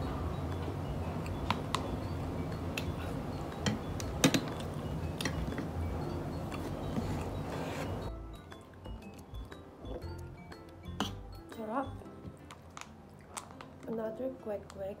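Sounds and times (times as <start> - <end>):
chewing: 12.4 - 13.9.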